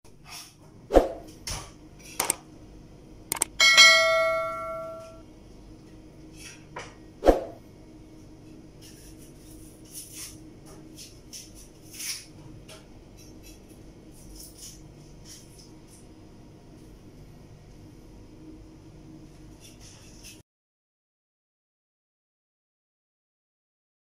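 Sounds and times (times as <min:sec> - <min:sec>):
sharp clicks: 0:02.2 - 0:02.4, 0:03.3 - 0:03.6
bell ding: 0:03.6 - 0:05.2.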